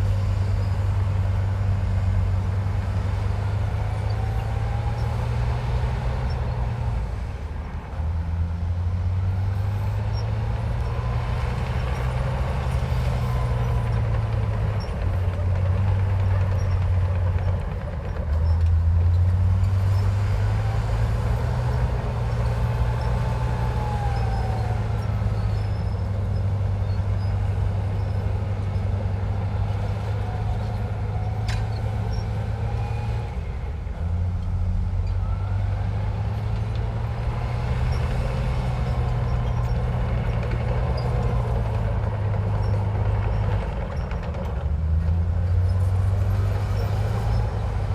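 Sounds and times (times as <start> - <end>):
bulldozer diesel engine: 0.0 - 47.9.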